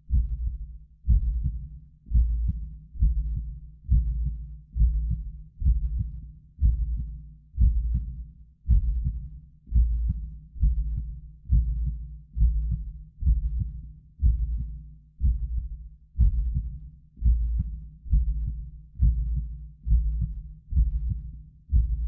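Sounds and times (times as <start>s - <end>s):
heartbeat thumps: 0.1s - 22.0s.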